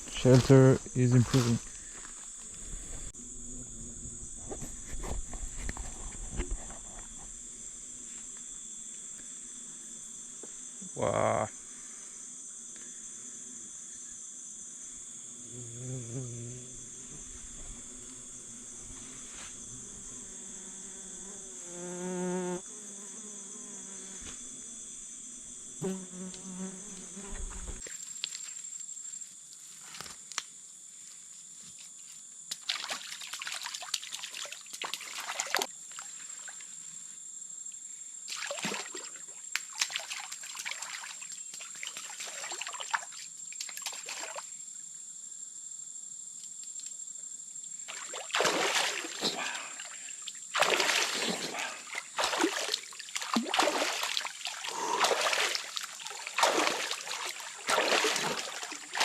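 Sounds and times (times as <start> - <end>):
high insect whine: 0.0 - 30.1, 34.0 - 59.0
water splashing and trickling: 32.5 - 35.7, 38.3 - 44.4, 47.9 - 59.0.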